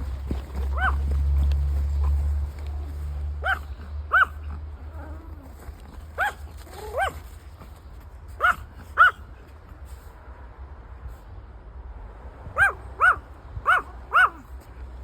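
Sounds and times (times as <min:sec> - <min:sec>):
small dog yapping: 0:00.7 - 0:01.0, 0:03.4 - 0:05.2, 0:06.2 - 0:07.2, 0:08.4 - 0:09.2, 0:12.6 - 0:14.5.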